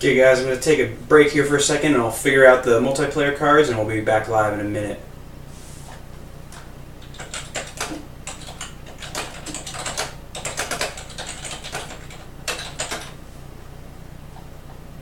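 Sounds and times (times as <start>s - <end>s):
keyboard typing clicks: 6.5s - 13.1s.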